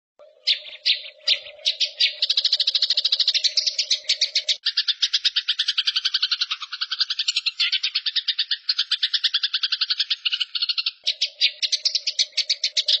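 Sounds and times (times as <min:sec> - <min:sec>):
songbird chirps and trill: 0:00.2 - 0:13.0.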